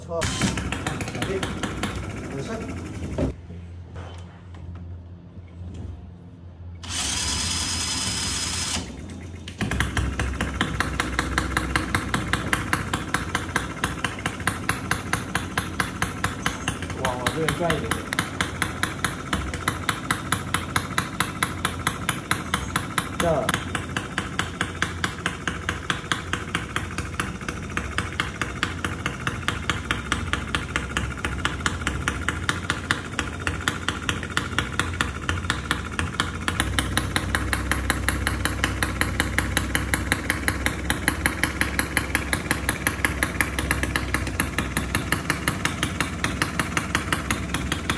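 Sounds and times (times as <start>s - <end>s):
model engine idling: 0.0s - 3.4s, 6.8s - 47.9s.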